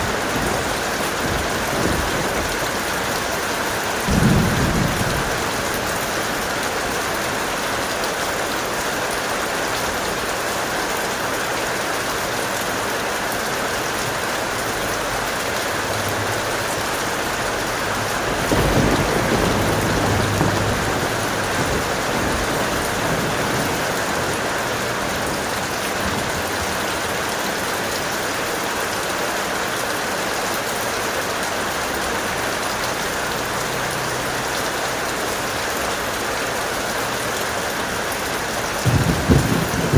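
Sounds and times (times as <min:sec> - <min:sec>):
thunder rumbling: 0:00.0 - 0:07.4, 0:15.3 - 0:27.5, 0:38.7 - 0:39.9
heavy rain pouring: 0:00.0 - 0:39.9.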